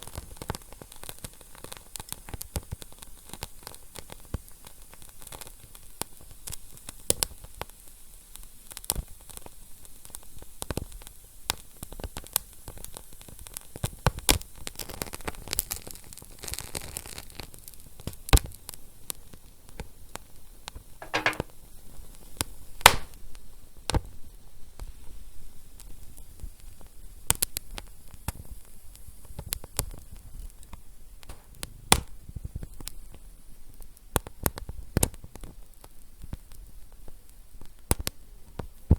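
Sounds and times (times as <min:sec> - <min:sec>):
wood fire crackling: 0:22.8 - 0:23.2.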